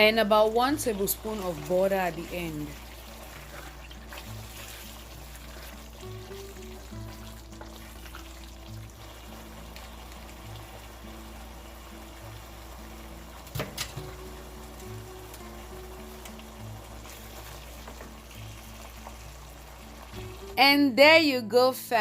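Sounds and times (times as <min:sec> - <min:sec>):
background music with low note: 0:00.0 - 0:22.0.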